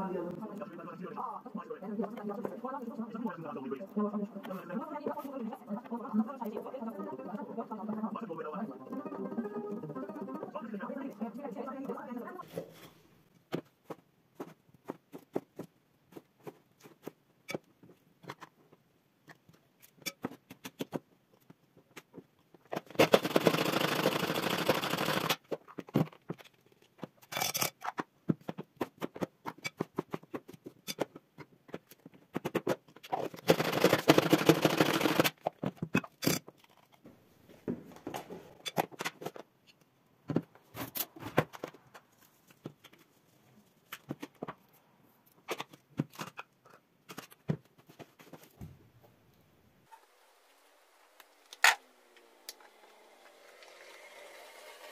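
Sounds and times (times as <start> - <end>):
utensils and dishes clicking: 27.2 - 28.0, 36.0 - 36.9.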